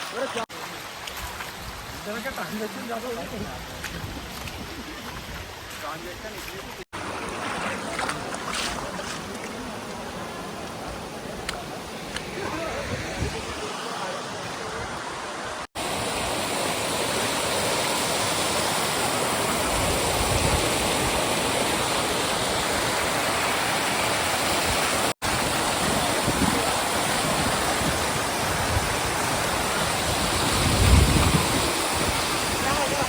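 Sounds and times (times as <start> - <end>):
waterfall roaring: 7.0 - 33.0.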